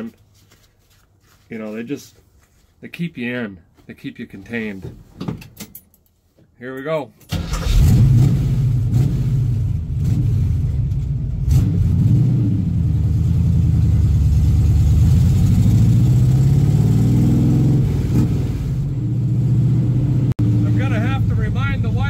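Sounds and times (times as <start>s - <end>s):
car engine revving under load: 7.5s - 21.4s.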